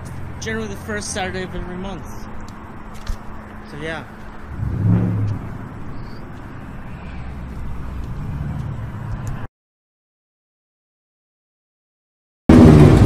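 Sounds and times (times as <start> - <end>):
car engine rumble: 0.0 - 9.5.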